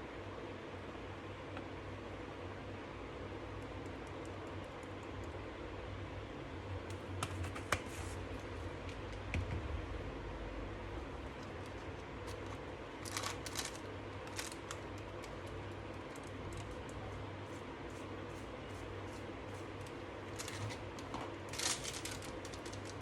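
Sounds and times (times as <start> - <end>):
steady low hum: 0.0 - 23.0
batter mixing clicks and scrapes: 11.2 - 23.0.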